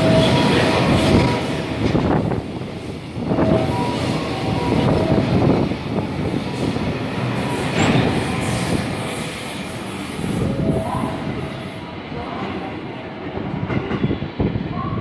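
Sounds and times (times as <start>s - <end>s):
freight train wagons rumbling: 0.0s - 15.0s.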